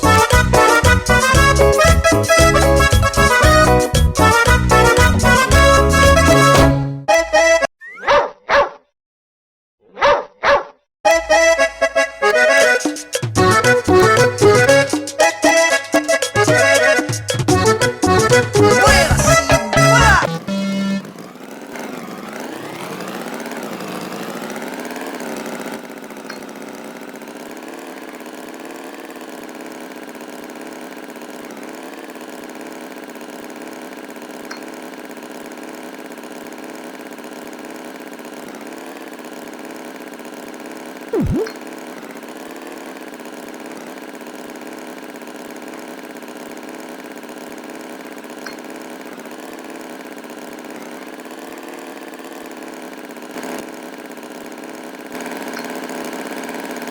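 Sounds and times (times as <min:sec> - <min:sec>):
engine idling: 0:00.0 - 0:06.6, 0:17.5 - 0:56.9.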